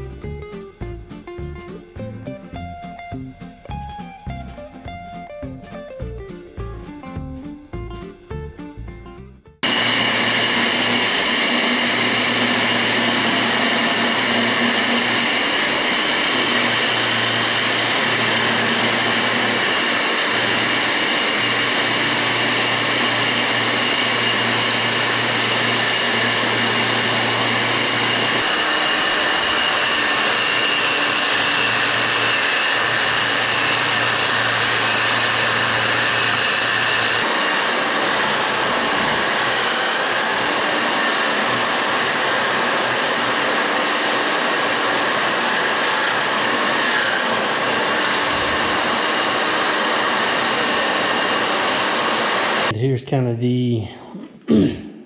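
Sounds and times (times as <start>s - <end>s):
core drill boring concrete: 9.6s - 52.7s.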